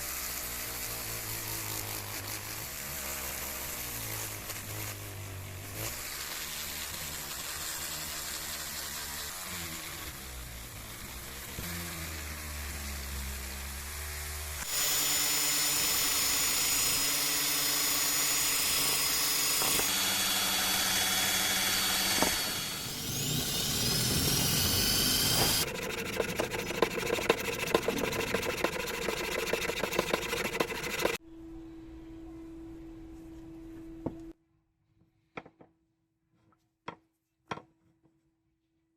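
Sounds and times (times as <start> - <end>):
power tool speeding up and slowing: 0.0 - 31.2
power tool whining: 14.6 - 31.2.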